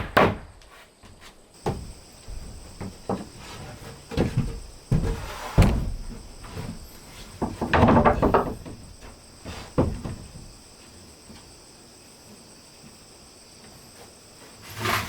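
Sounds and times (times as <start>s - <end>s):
wooden knocks and thumps: 0.0s - 11.5s.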